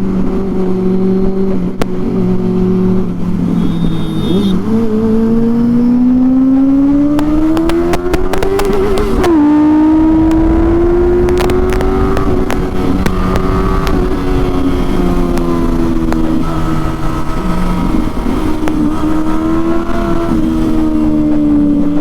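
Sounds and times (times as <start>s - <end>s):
motorcycle engine accelerating: 0.0s - 22.0s
exhaust cracks: 7.2s - 19.0s.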